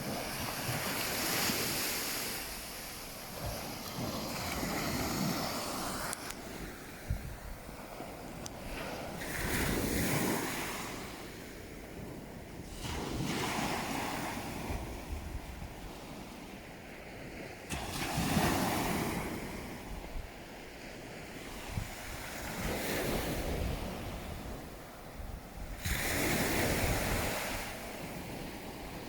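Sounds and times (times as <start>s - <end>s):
sea waves breaking: 0.0s - 11.5s.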